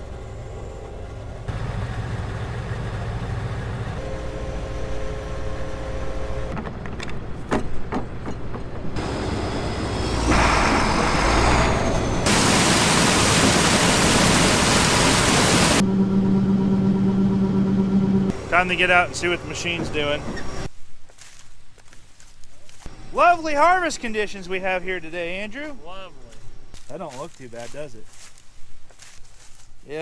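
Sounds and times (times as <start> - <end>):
loud rush of machine noise: 0.0 - 6.6, 9.0 - 20.7
farm machinery engines running: 0.0 - 20.7.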